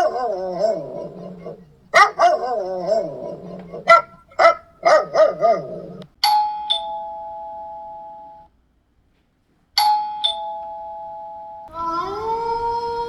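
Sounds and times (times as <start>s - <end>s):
dog barking: 0.0s - 6.1s
two-tone doorbell chime: 6.2s - 8.5s, 9.8s - 11.7s.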